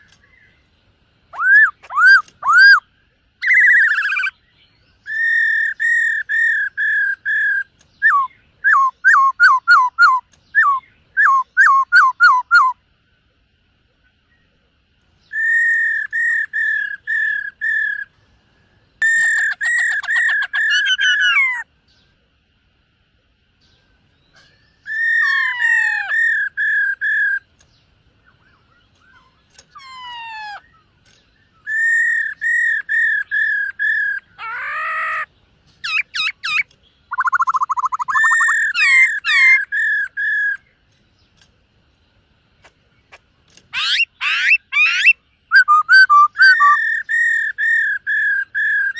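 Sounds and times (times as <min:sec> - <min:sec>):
bird singing whistles: 0:01.3 - 0:04.4, 0:05.0 - 0:12.8, 0:15.2 - 0:18.1, 0:24.2 - 0:27.5, 0:31.4 - 0:34.3, 0:35.8 - 0:40.7, 0:43.8 - 0:48.9.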